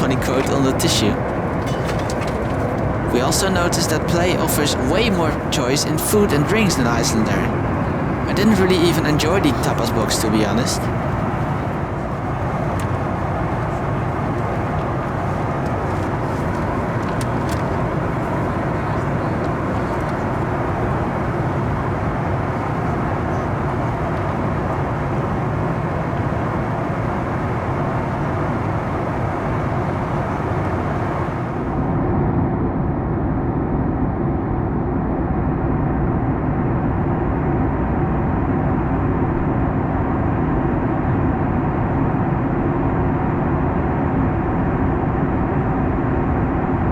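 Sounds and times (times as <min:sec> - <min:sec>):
airplane cabin noise: 0:00.0 - 0:32.4.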